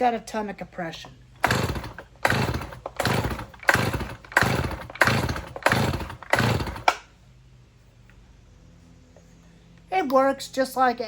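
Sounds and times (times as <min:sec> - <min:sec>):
engine cranking without firing: 0:01.3 - 0:07.1
chainsaw recoil starter pulls: 0:01.4 - 0:07.1.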